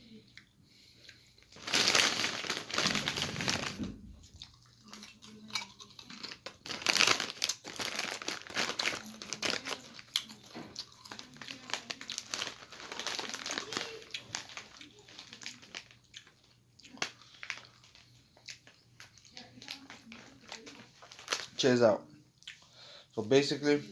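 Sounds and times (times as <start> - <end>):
foil snack bag crinkling: 1.4 - 21.8.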